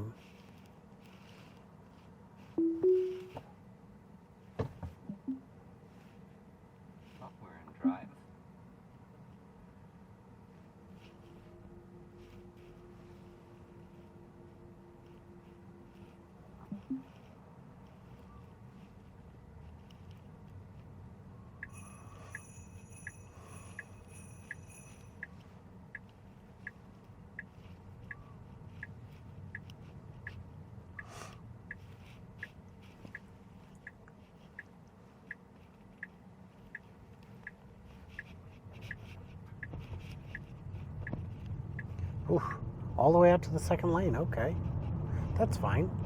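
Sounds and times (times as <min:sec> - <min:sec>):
low road rumble: 0:00.0 - 0:46.0
electronic chime: 0:02.6 - 0:03.3
turn signal ticking: 0:21.6 - 0:42.2.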